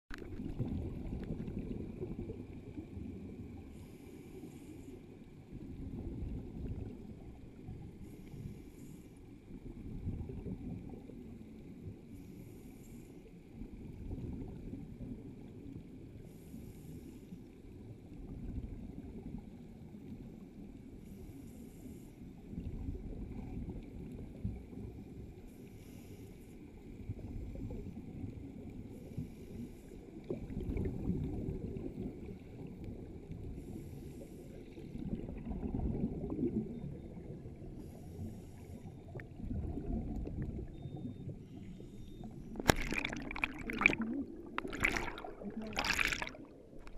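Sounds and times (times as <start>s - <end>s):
low rumble of moving water: 0.1s - 46.9s
bubbly regulator exhale: 37.9s - 46.9s.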